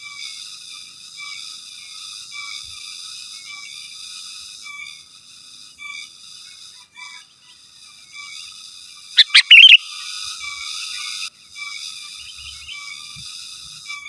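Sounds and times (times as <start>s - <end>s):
bulbul bubbling call: 9.2s - 9.8s
soft chirps: 9.2s - 9.8s.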